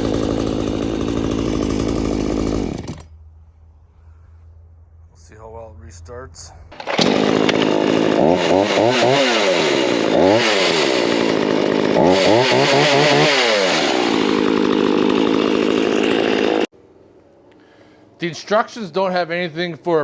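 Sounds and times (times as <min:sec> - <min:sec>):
chainsaw revving and idling: 0:00.0 - 0:03.2, 0:06.7 - 0:16.7.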